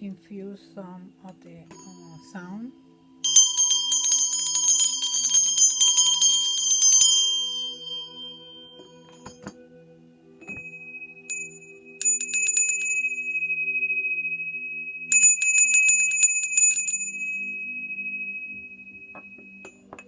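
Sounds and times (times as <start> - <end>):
small metal bell ringing: 1.8 - 2.3, 3.2 - 9.6, 10.4 - 20.0.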